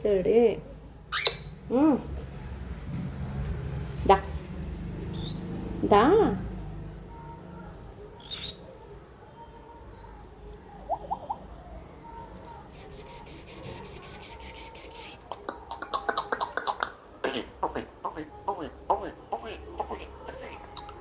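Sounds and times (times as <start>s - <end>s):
cockatiel rasping: 12.8s - 21.0s
cockatiel chirping: 15.7s - 16.9s.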